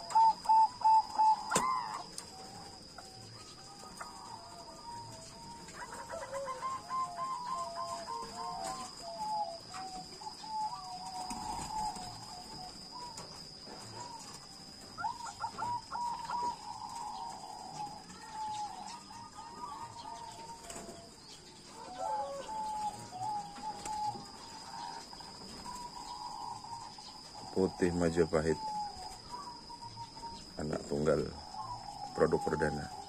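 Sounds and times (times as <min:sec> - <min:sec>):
dove cooing: 0:00.0 - 0:33.0.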